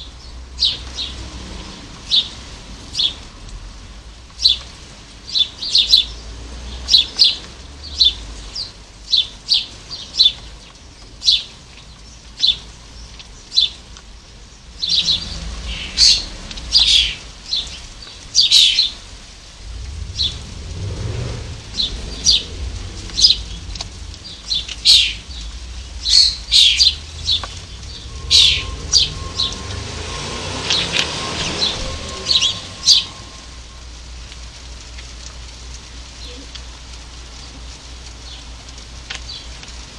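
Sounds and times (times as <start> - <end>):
small birds chirping: 0.0 - 1.2, 2.0 - 3.2, 4.3 - 35.1, 36.0 - 39.9
low rumbling noise: 14.5 - 39.9.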